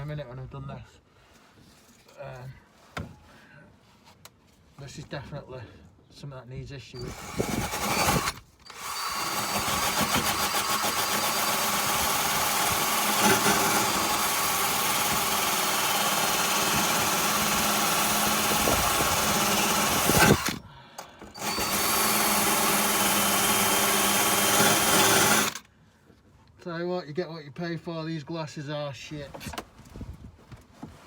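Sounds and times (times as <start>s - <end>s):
drill wire brush scouring metal: 7.0s - 20.6s, 21.3s - 25.6s.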